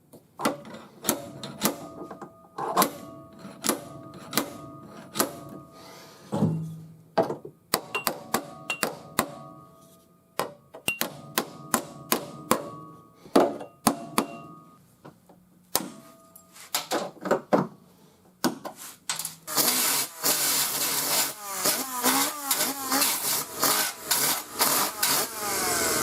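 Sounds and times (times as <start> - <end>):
hammer striking sheet metal: 2.8 - 5.7, 7.7 - 9.8, 10.4 - 14.8
loud power tool running: 19.5 - 26.0.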